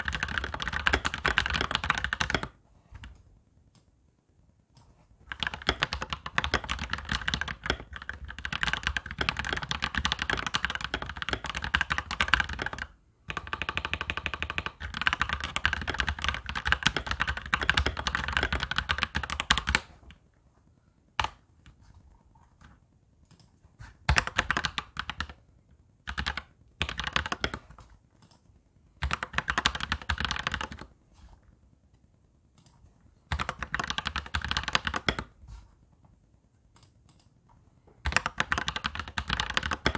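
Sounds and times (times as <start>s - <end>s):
mechanical keyboard typing: 0.0s - 2.6s, 5.2s - 20.1s, 21.2s - 21.4s, 22.6s - 25.4s, 26.0s - 28.4s, 29.0s - 30.9s, 32.6s - 35.4s, 38.0s - 39.9s.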